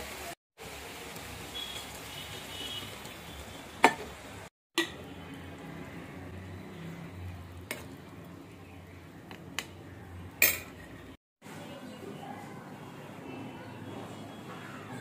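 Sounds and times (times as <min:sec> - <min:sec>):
curry sizzling in a wok: 0:00.0 - 0:11.2.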